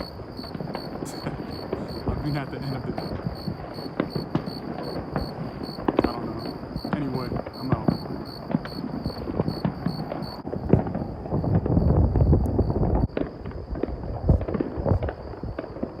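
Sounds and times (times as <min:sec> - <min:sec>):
fireworks booming: 0:00.0 - 0:16.0
fireworks popping and crackling: 0:00.0 - 0:16.0.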